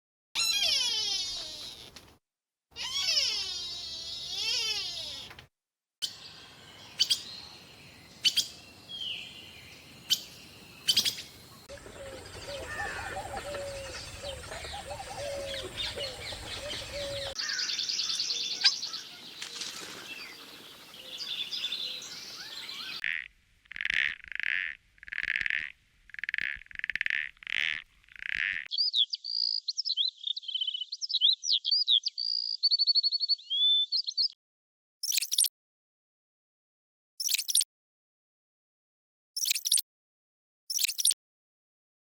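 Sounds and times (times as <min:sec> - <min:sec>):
short animal calls: 0:02.8 - 0:05.3
animal chirps and clicks: 0:10.9 - 0:11.3, 0:35.0 - 0:35.5, 0:37.2 - 0:37.6, 0:39.4 - 0:39.8, 0:40.7 - 0:41.2
warbling animal calls: 0:11.6 - 0:17.4.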